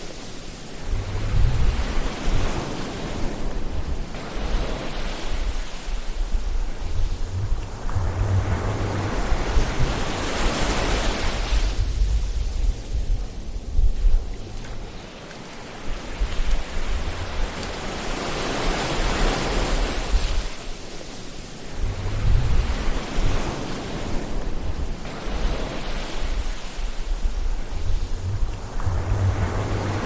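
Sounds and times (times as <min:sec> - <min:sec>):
ocean waves washing in: 0:00.0 - 0:30.0
low rumble: 0:00.8 - 0:02.4, 0:06.0 - 0:10.6, 0:21.7 - 0:23.4, 0:26.2 - 0:30.0.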